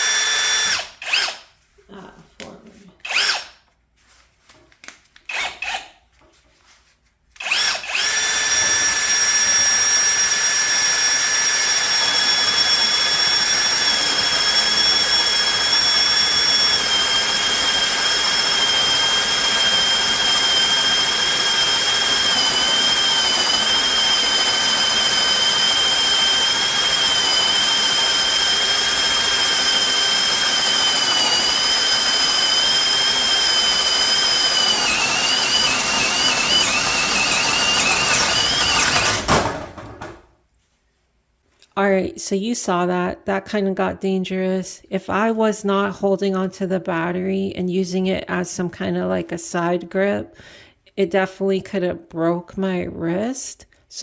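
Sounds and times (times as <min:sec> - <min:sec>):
cordless drill whining: 0:00.0 - 0:01.5, 0:03.0 - 0:03.6, 0:05.3 - 0:05.9, 0:07.4 - 0:39.8.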